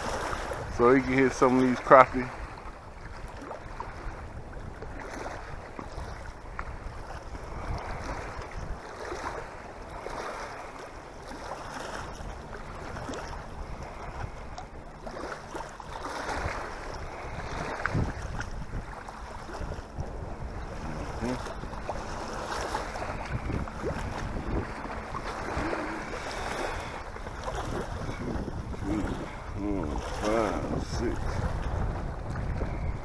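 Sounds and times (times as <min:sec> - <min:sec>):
small waves lapping: 0:00.0 - 0:33.0
wind on microphone: 0:00.0 - 0:33.0.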